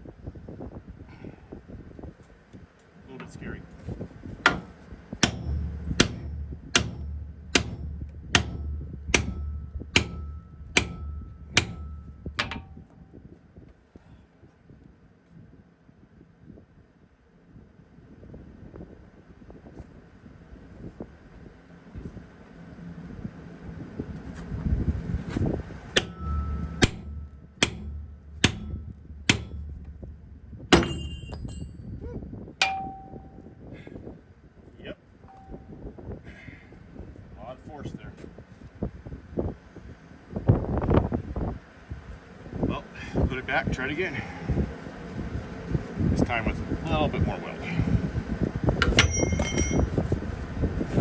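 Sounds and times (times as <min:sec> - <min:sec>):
low steady rumble: 0:03.0 - 0:13.6, 0:20.4 - 0:36.2, 0:36.8 - 0:51.0
low steady hum: 0:03.1 - 0:13.2, 0:25.8 - 0:33.7, 0:35.2 - 0:36.0, 0:48.8 - 0:50.1
hammer striking steel: 0:04.5 - 0:12.9, 0:26.0 - 0:31.8, 0:32.6 - 0:33.4, 0:48.8 - 0:49.9.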